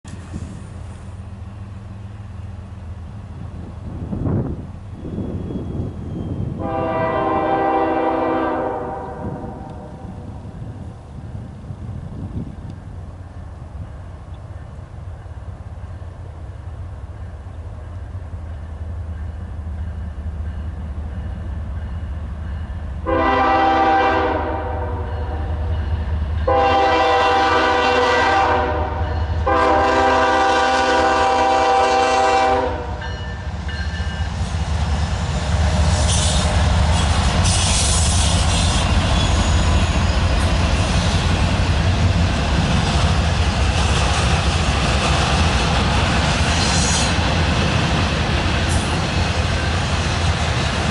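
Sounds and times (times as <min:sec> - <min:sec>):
diesel locomotive rumble: 0:00.0 - 0:50.9
wheel and rail noise: 0:00.0 - 0:50.9
high wheel squeals: 0:04.9 - 0:06.6, 0:35.9 - 0:40.5
train air horn blasts: 0:06.5 - 0:10.4, 0:23.0 - 0:25.8, 0:26.4 - 0:33.4, 0:35.8 - 0:39.9.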